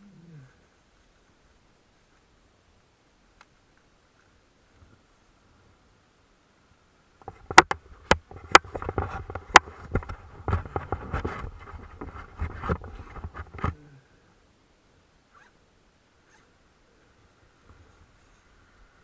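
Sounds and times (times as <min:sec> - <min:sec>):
bike clattering over rough ground: 0:07.2 - 0:13.7.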